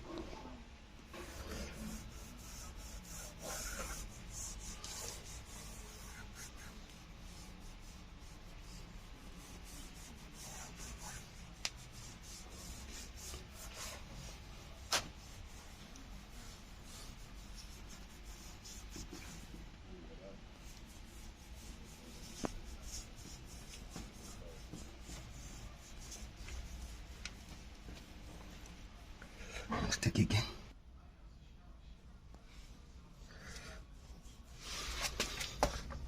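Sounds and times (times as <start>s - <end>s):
hands rubbing and scraping glass: 1.2s - 19.6s.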